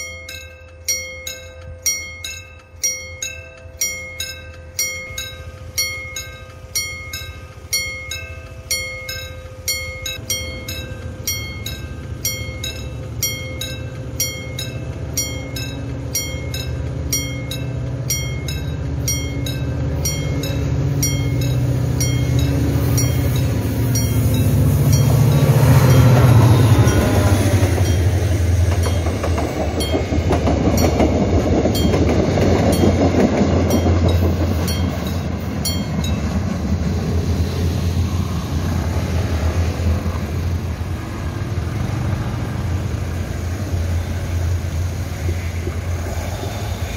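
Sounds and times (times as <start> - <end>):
crossing warning bell ringing: 0.0 - 37.2
wheels clattering over rail joints: 0.0 - 37.3
passenger train rumbling past: 0.0 - 46.9.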